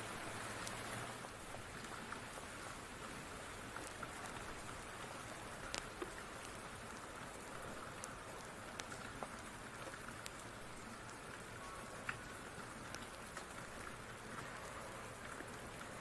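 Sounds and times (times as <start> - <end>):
steady rain: 0.0 - 16.0
wood fire crackling: 0.2 - 16.0.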